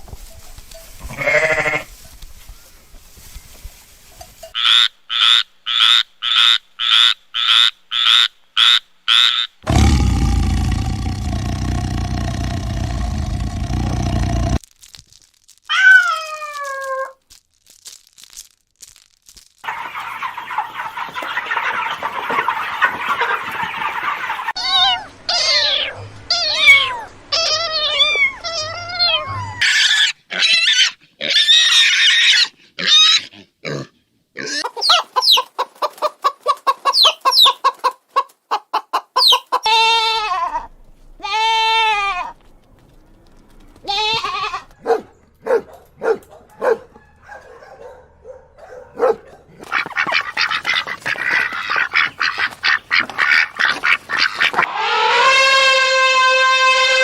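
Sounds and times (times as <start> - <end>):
falling animal call: 9.1 - 14.6, 15.6 - 17.2, 19.7 - 33.2, 49.6 - 57.0
noise bursts: 9.6 - 14.7.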